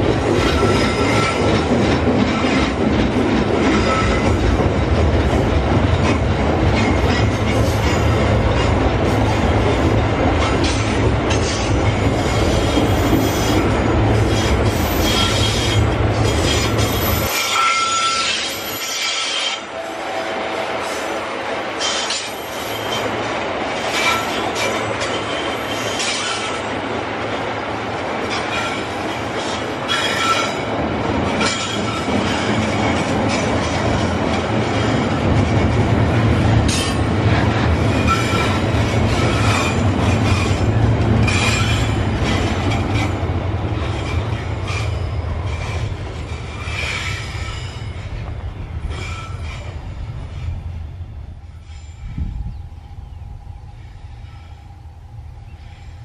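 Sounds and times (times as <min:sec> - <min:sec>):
high wheel squeal: 0:14.3 - 0:20.2, 0:21.8 - 0:23.2, 0:24.0 - 0:26.7, 0:44.0 - 0:48.1, 0:48.8 - 0:50.5.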